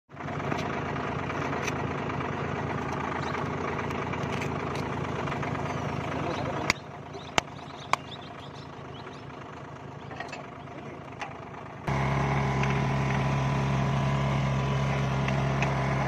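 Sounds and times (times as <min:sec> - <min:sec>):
tractor engine running: 0:00.1 - 0:16.0.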